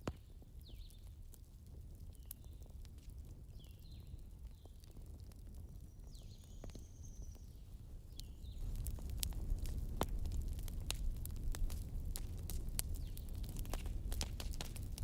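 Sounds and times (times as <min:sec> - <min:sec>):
campfire crackling: 0:00.0 - 0:15.0
small birds chirping: 0:00.2 - 0:01.1, 0:02.0 - 0:05.0, 0:05.6 - 0:08.8.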